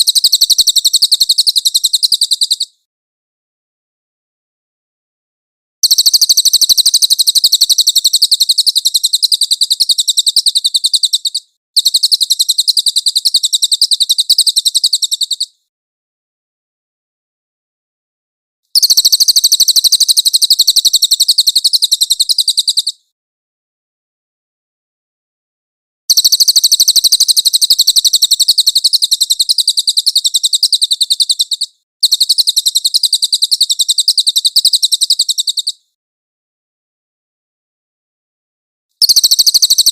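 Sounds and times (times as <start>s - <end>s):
songbird trilling high chirps: 0.0s - 2.8s, 5.8s - 15.6s, 18.8s - 23.0s, 26.1s - 35.8s, 39.0s - 39.9s.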